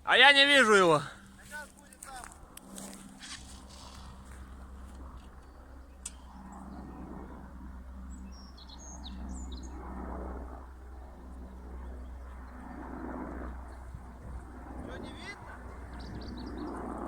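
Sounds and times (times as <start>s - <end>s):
small birds chirping: 8.0s - 9.8s, 14.8s - 17.0s.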